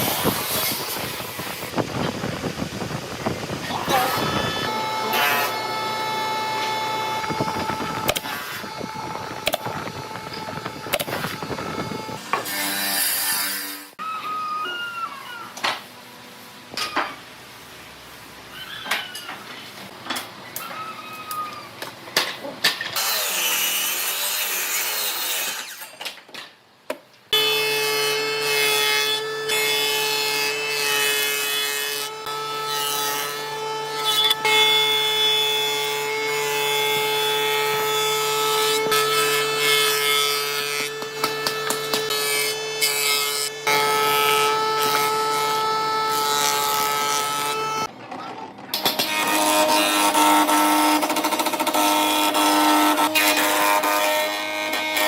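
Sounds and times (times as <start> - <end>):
woodworking machine whining: 0.0 - 15.8, 29.1 - 55.0.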